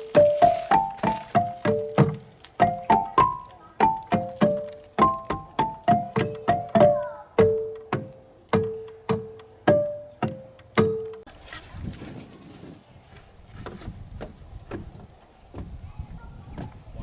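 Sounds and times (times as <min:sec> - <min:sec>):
tuned percussion playing a tune: 0:00.0 - 0:11.3.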